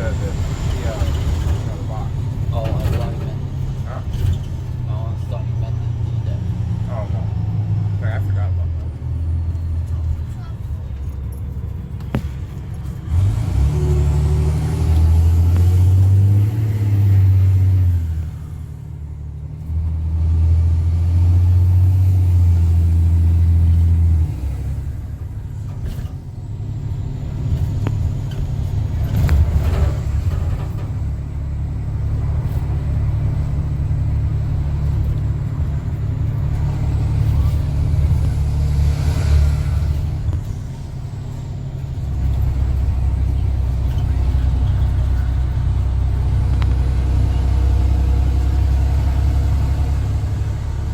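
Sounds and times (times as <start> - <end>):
diesel bus engine droning: 0.0 - 50.9.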